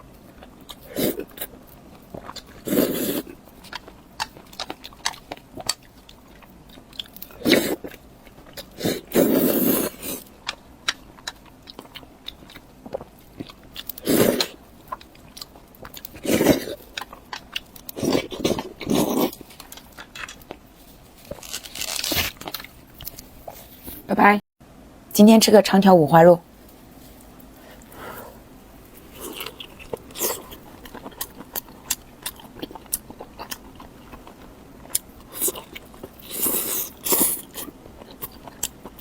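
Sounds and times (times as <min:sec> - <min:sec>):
chewing with wet mouth clicks: 0:00.2 - 0:08.8, 0:10.2 - 0:20.6, 0:29.1 - 0:39.0.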